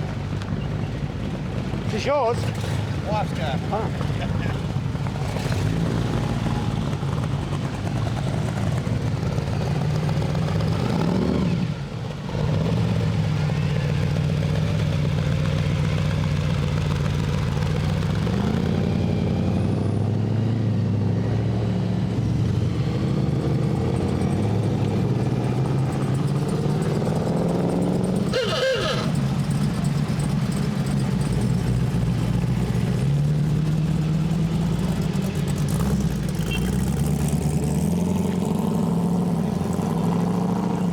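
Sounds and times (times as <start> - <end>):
car engines rumbling: 0.0 - 40.9.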